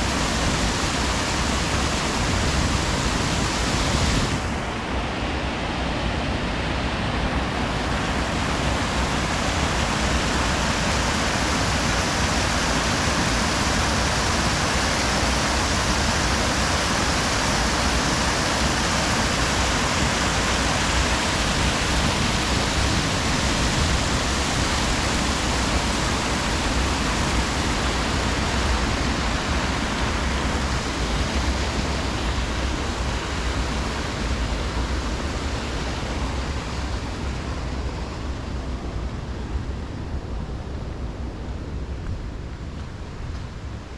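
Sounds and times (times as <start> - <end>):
river water rushing: 0.0 - 43.9.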